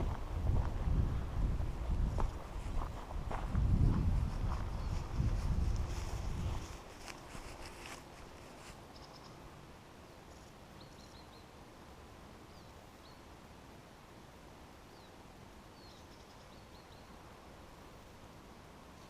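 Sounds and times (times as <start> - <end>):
quiet steady hiss: 0.0 - 19.0
faint bird chirps: 8.9 - 9.4, 10.8 - 11.5, 14.9 - 17.2.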